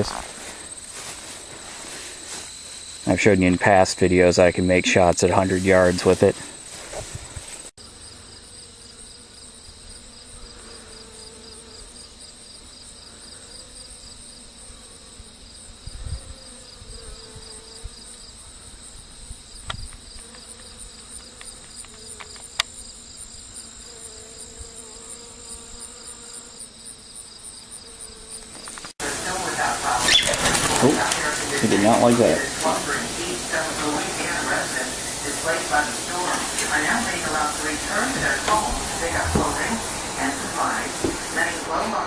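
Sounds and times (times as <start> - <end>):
crickets chirping: 0.0 - 42.0
wavering insect buzz: 0.0 - 42.0.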